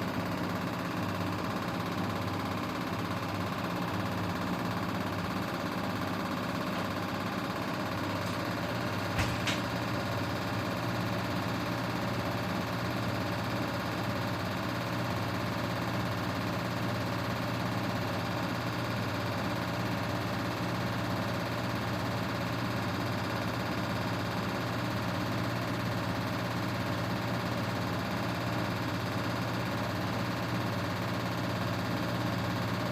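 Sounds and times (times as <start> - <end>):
washing machine motor humming: 0.0 - 14.6.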